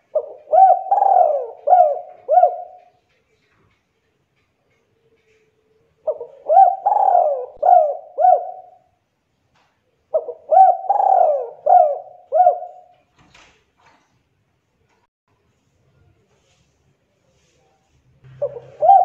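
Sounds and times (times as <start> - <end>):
dove cooing: 0.0 - 3.1, 5.2 - 9.0, 10.1 - 12.9, 18.3 - 19.0.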